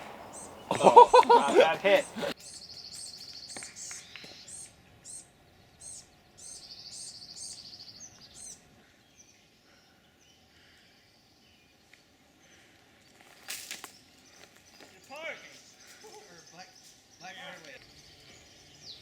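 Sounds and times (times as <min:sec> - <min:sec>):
birds singing and chirping: 0:00.0 - 0:12.6, 0:13.9 - 0:19.0.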